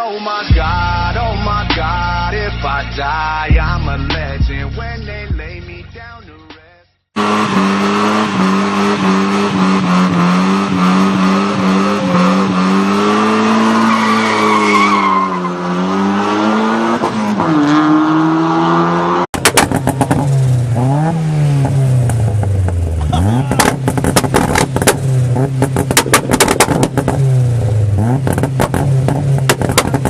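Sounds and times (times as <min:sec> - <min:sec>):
tires squealing: 0:07.2 - 0:20.3, 0:23.0 - 0:27.3
engine at high revs: 0:07.2 - 0:30.0
engine revving up and down: 0:07.2 - 0:30.0
exhaust crackling pops: 0:19.4 - 0:20.8, 0:21.6 - 0:30.0.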